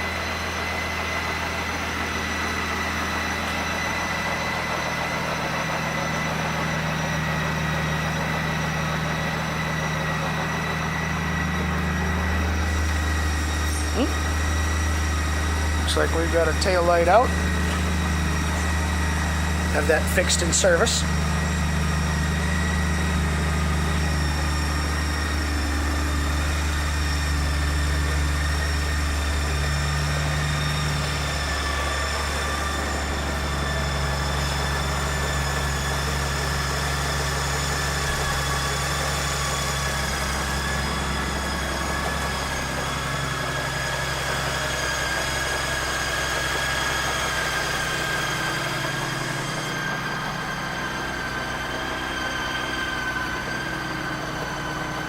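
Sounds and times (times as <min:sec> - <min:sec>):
motorcycle engine idling: 0:00.0 - 0:37.3.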